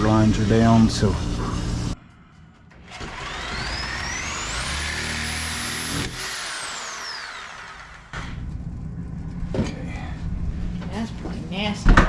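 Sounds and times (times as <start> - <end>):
power tool motor whine: 2.9 - 8.3.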